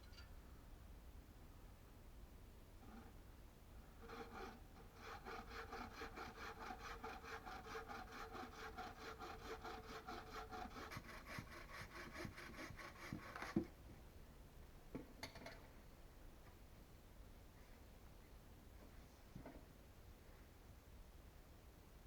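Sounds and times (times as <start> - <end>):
hand saw cutting wood: 4.0 - 13.7.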